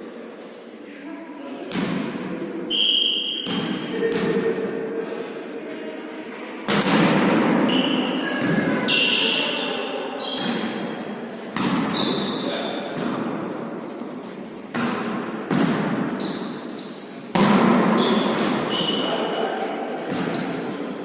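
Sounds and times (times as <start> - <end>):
shoe squeaks: 0.0 - 0.6, 2.7 - 4.0, 7.7 - 10.7, 11.6 - 12.9, 14.5 - 14.9, 16.2 - 17.3, 18.0 - 19.4
ball thuds echoing in hall: 1.6 - 4.9, 6.5 - 9.6, 10.2 - 21.0.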